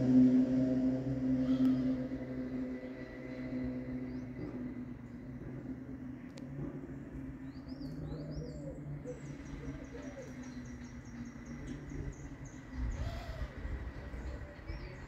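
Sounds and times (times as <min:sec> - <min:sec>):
low hum: 0:00.0 - 0:15.0
low rumble: 0:00.0 - 0:15.0
small birds chirping: 0:07.3 - 0:15.0.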